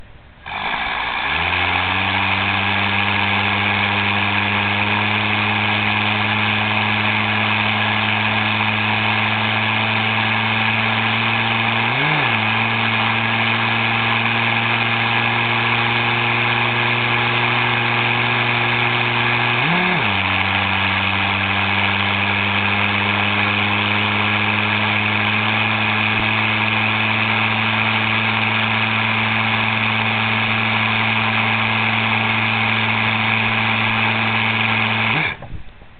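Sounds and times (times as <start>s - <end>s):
engine idling: 0.0s - 35.9s.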